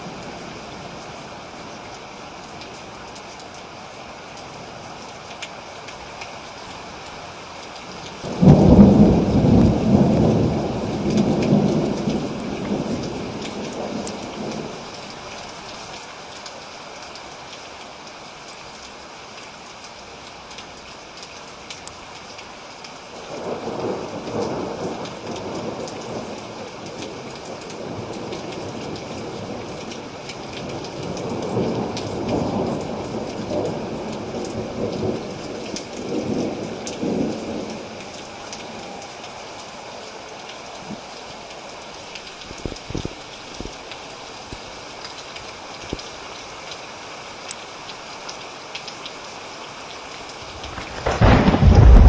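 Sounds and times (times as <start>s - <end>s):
steady rain: 0.0s - 52.0s
rolling thunder: 8.2s - 14.6s, 50.5s - 52.0s
sharp drip-like taps: 20.5s - 23.0s.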